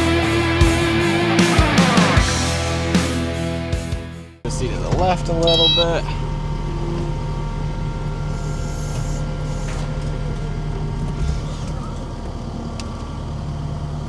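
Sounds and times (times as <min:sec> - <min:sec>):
truck engine running: 0:00.0 - 0:14.0.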